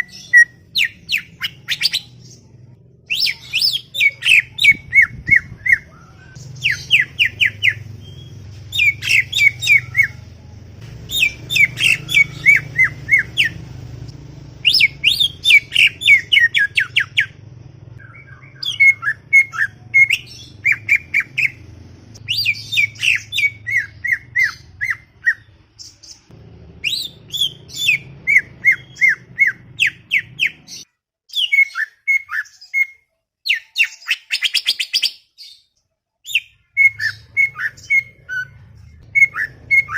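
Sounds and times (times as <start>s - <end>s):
bird singing chattering song: 0.0s - 14.0s, 14.6s - 39.9s
faint low hum: 0.0s - 30.8s.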